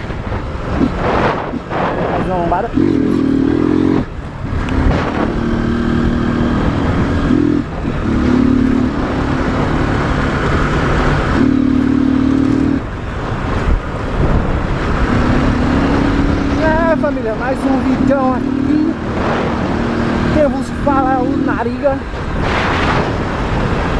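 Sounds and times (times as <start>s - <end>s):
motorcycle engine revving: 0.0s - 23.9s.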